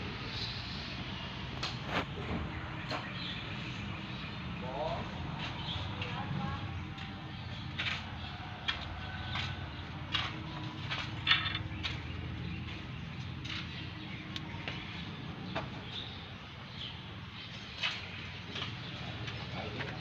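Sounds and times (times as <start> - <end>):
three-wheeler engine idling: 2.6 - 20.0.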